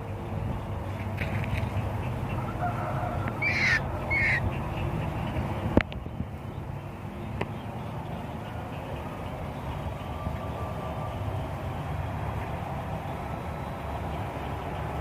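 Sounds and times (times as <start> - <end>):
bird squawks: 3.4 - 4.5.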